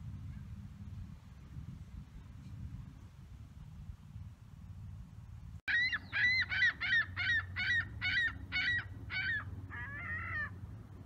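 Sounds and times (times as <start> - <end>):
bird calling: 5.7 - 10.6.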